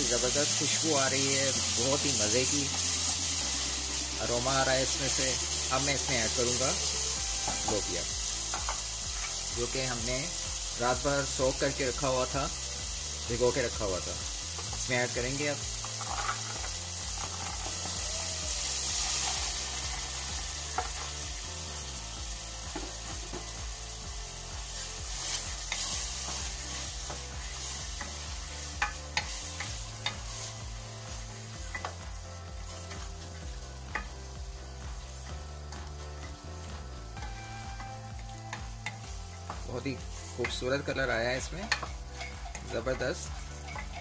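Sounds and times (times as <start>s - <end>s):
spices sizzling in a metal pot: 0.0s - 44.0s.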